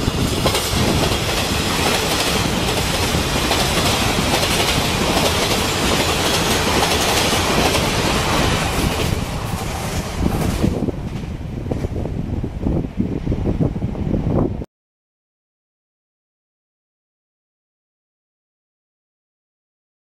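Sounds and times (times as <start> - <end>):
passenger train passing: 0.0 - 14.6.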